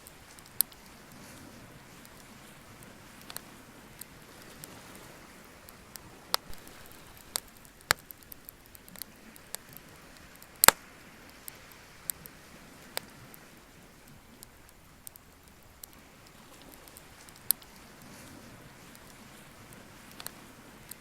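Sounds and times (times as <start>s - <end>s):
bonfire crackling: 0.0s - 21.0s
fire hiss: 6.3s - 8.8s.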